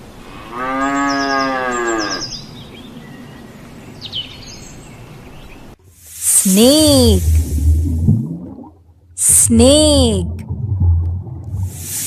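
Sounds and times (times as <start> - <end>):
small birds chirping: 1.0 - 5.8.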